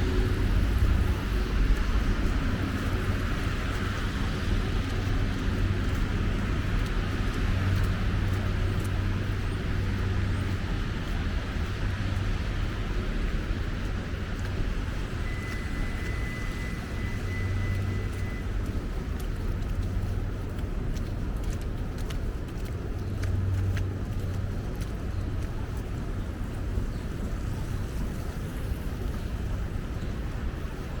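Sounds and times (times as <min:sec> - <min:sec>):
traffic rumble: 0:00.0 - 0:31.0.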